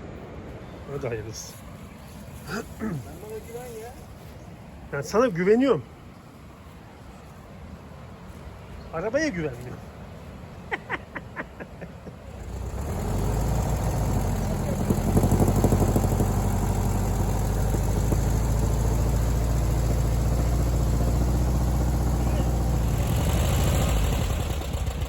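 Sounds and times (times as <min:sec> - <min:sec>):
car engine starting and running: 0:12.3 - 0:25.0.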